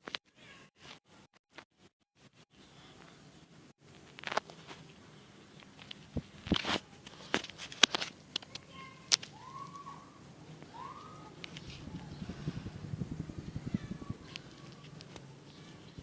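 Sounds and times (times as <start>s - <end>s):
sharp clicks and light knocks: 5.6s - 9.4s, 14.3s - 15.3s.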